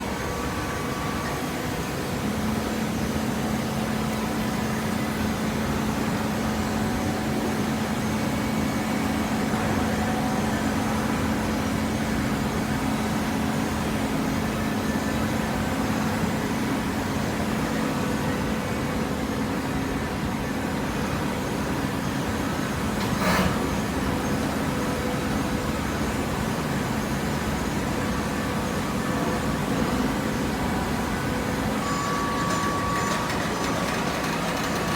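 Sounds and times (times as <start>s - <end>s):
hydraulic baler humming: 0.0s - 34.9s
sharp machine clack: 31.8s - 34.9s.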